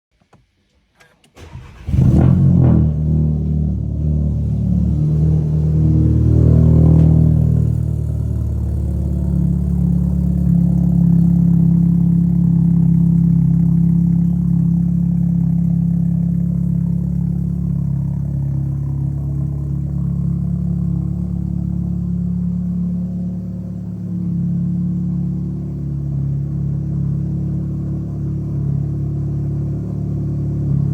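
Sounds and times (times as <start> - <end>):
car engine idling: 1.4 - 30.9.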